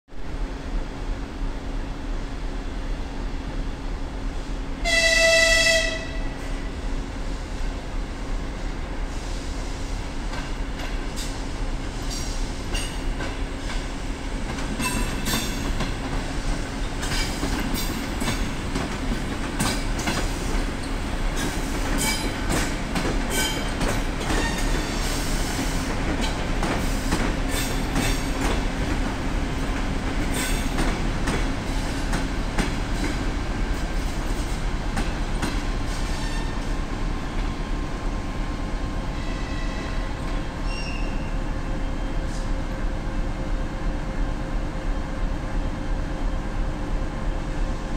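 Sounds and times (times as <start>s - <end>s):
train hum and rumble: 0.1s - 47.9s
wheel squeal: 40.6s - 41.3s.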